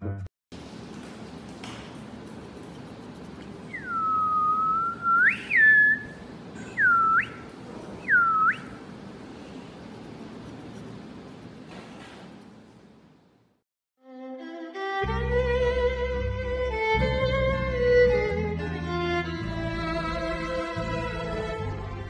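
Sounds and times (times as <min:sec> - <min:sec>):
steady low hum: 0:00.6 - 0:13.6
person whistling: 0:03.7 - 0:08.8.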